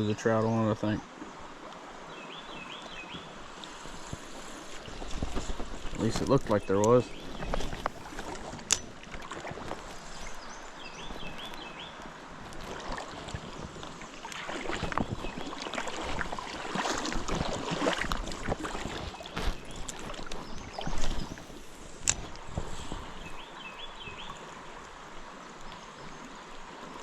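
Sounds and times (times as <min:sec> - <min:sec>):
creek water running and splashing: 0:00.0 - 0:27.0
wind on microphone: 0:03.8 - 0:14.0, 0:14.6 - 0:24.3.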